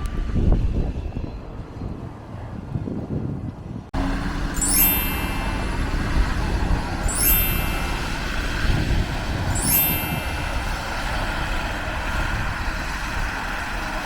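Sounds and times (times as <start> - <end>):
vehicles passing: 0.1 - 14.0
rising high-pitched sweeps: 4.0 - 11.5.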